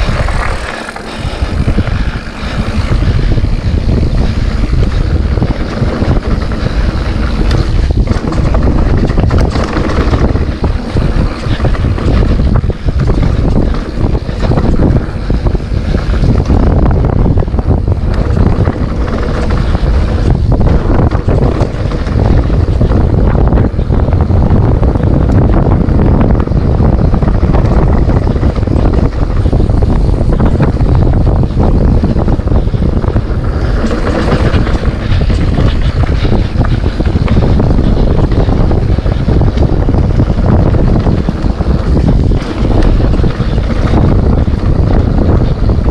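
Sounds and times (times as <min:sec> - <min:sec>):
bike knocks and rattles: 0:00.0 - 0:45.9
tyre rumble: 0:00.0 - 0:45.9
wind on microphone: 0:00.0 - 0:45.9.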